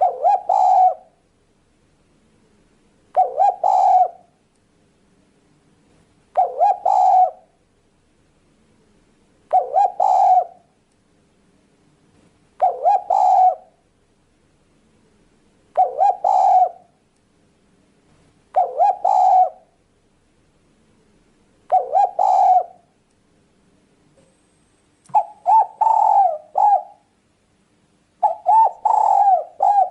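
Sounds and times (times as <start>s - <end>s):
dove cooing: 0.0s - 1.2s, 3.1s - 4.4s, 6.3s - 7.6s, 9.5s - 10.7s, 12.6s - 13.8s, 15.7s - 17.0s, 18.5s - 19.8s, 21.7s - 22.9s, 25.1s - 27.1s, 28.2s - 29.9s.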